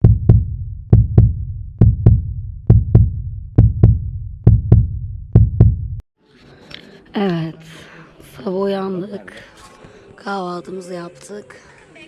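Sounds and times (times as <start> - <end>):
heartbeat thumps: 0.0 - 6.0.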